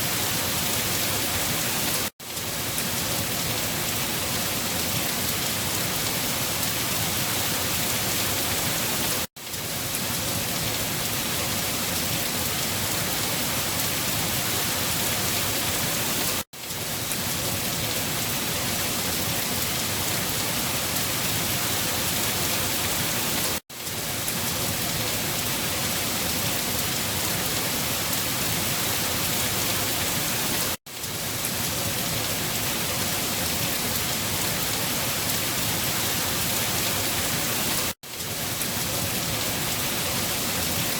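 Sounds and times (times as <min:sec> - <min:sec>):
dense rainfall hissing: 0:00.0 - 0:40.9.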